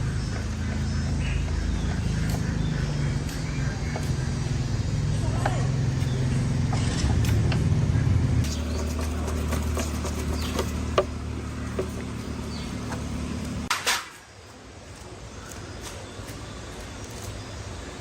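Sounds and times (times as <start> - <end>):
motorbike engine idling: 7.5 - 13.7.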